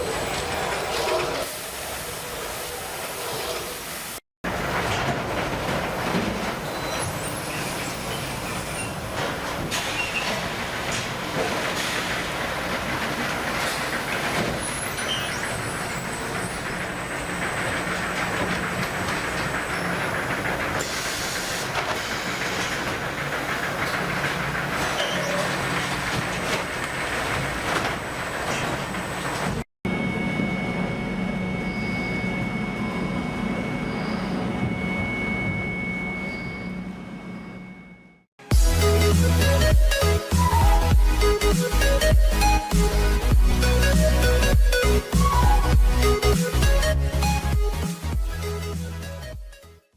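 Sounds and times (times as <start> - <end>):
deck machinery rattling: 4.5 - 29.6
machinery drone with high whine: 29.9 - 47.5.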